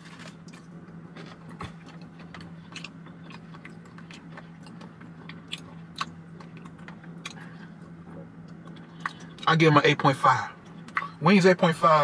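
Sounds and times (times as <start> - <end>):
person chewing food: 0.0 - 9.5
steady low hum: 0.0 - 12.0
wet mouth clicks and smacks: 2.7 - 7.4.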